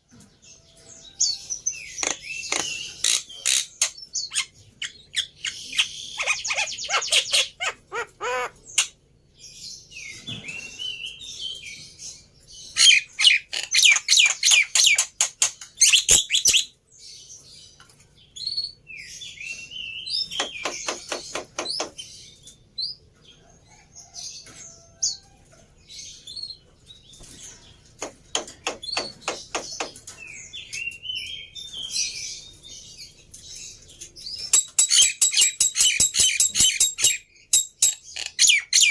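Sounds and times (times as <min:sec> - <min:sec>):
bird harsh rattling calls: 0:01.9 - 0:09.0, 0:12.7 - 0:16.7, 0:20.2 - 0:22.2, 0:28.0 - 0:30.2, 0:34.4 - 0:38.9.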